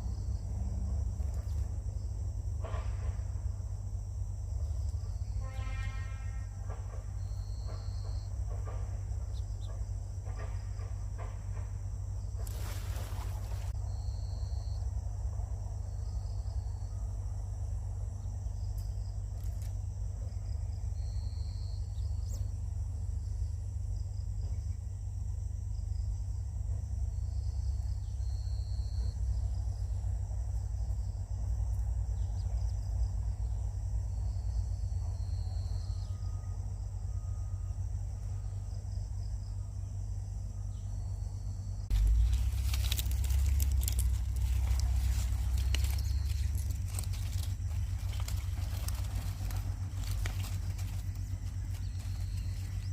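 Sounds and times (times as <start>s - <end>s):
high insect drone: 0.0s - 52.9s
low rumble: 41.1s - 52.9s.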